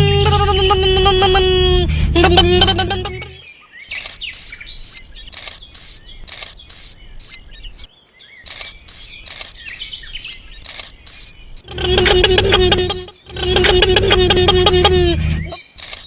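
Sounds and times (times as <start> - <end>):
sustained pitched tone: 0.0 - 3.4, 11.6 - 15.6
birds chirping: 0.0 - 16.0
sharp clicks: 2.7 - 16.0.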